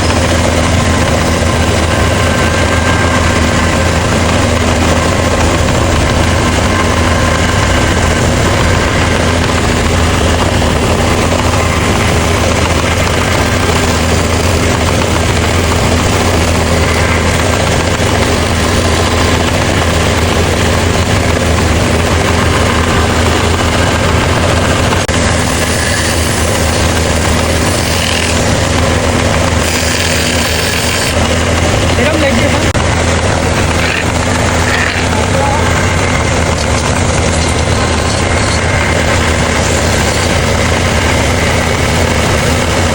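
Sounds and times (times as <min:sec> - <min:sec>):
low hum: 0:00.0 - 0:42.9
power tool whirring: 0:25.2 - 0:42.8.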